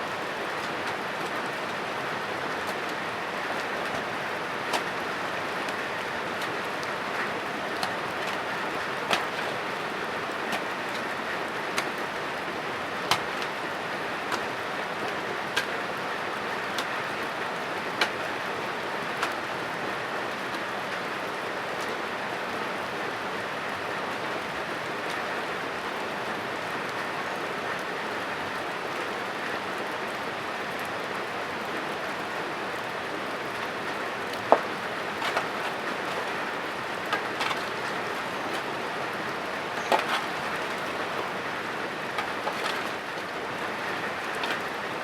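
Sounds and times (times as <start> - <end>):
steady rain hiss: 0.0 - 45.0.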